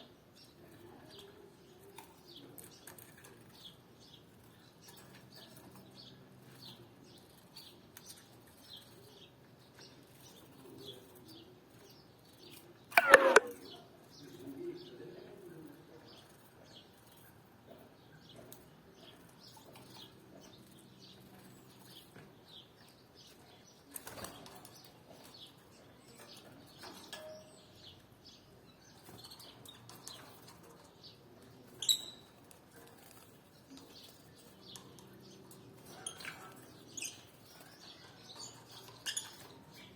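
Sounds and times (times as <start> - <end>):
sharp sounds: 13.0 - 13.5
canaries chirping: 19.0 - 39.9.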